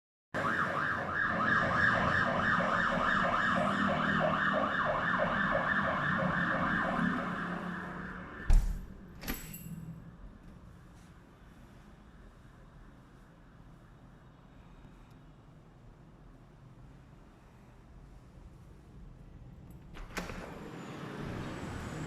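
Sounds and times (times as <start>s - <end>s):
siren yelping: 0.4s - 8.5s
door shutting with thump: 8.4s - 9.5s
door latch click: 8.5s - 9.6s.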